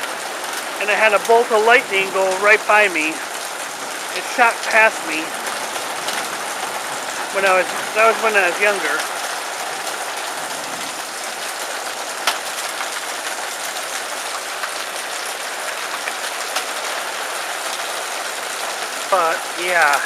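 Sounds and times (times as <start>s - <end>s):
heavy rain on a metal roof: 0.0s - 20.0s
sharp ticks of rain: 0.0s - 20.0s.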